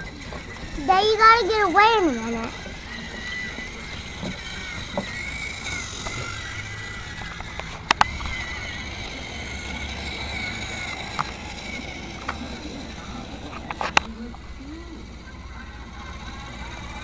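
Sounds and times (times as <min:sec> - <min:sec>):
toy train motor whining: 0:00.0 - 0:17.0
sharp clicks: 0:07.0 - 0:09.8.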